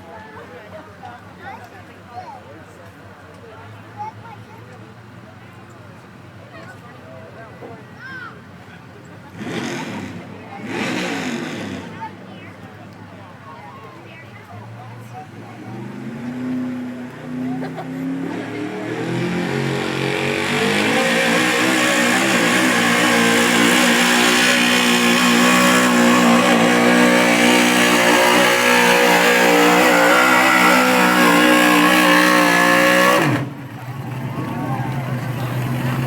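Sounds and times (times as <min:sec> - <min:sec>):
truck engine at high revs: 0:08.5 - 0:13.4, 0:14.2 - 0:36.0.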